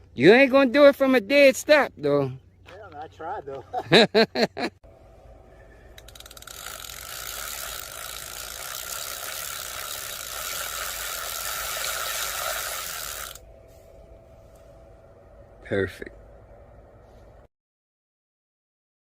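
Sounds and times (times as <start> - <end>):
rapid ratcheting clicks: 5.9 - 13.4
electric motorcycle rushing with whine: 6.6 - 13.4.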